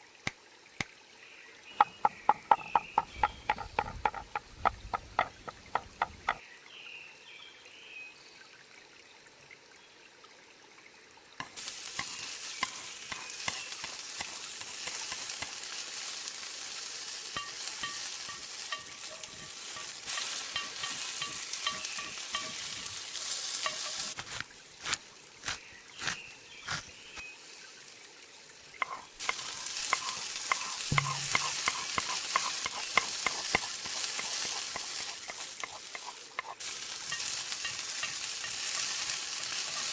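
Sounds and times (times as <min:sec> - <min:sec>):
food sizzling in a frying pan: 0:11.4 - 0:25.0, 0:26.7 - 0:39.9
utensil stirring in pan: 0:11.6 - 0:27.2, 0:28.8 - 0:39.9.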